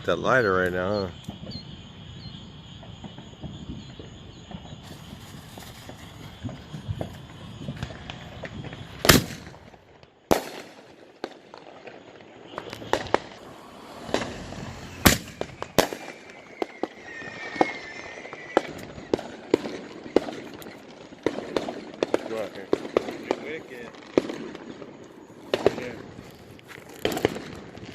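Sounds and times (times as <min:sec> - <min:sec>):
fireworks bangs: 0:00.8 - 0:27.9
fireworks pops and crackles: 0:01.2 - 0:27.9
faint whistling glide: 0:12.1 - 0:19.4.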